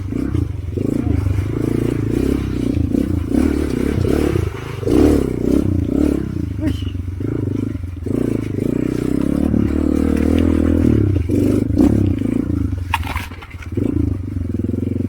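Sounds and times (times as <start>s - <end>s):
motorcycle engine revving: 0.0s - 15.0s
brief clatter: 12.9s - 13.7s.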